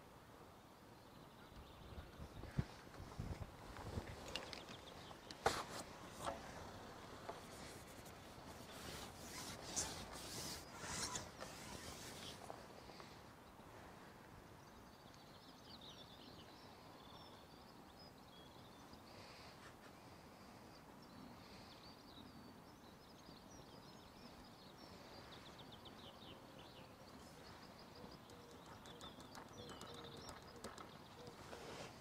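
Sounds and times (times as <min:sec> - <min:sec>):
small birds chirping and trilling: 0:01.1 - 0:13.6, 0:20.4 - 0:32.0.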